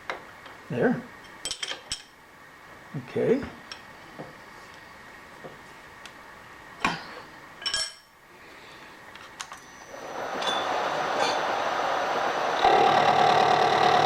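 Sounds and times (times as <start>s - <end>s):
milling machine motor running: 9.9s - 14.0s.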